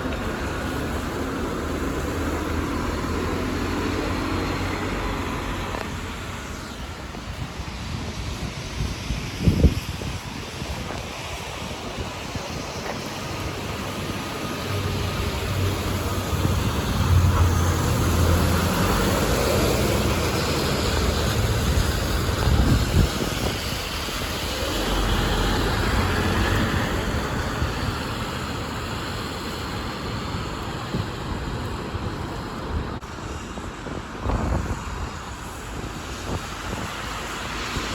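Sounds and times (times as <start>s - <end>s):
bus engine rumbling: 0.0s - 9.1s, 11.0s - 37.9s
traffic noise: 0.0s - 37.9s.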